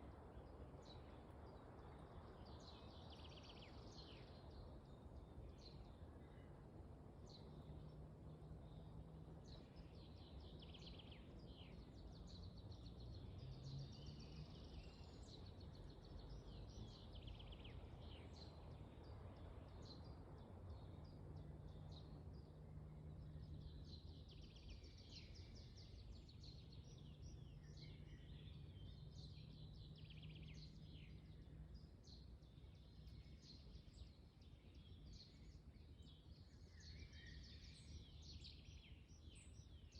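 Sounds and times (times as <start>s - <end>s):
small birds chirping: 7.3s - 39.9s.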